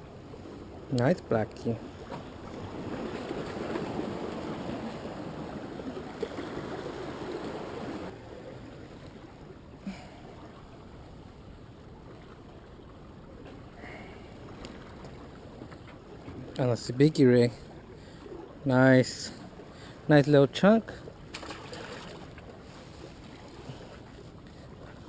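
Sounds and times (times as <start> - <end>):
ocean surf washing on shore: 0.0 - 10.7.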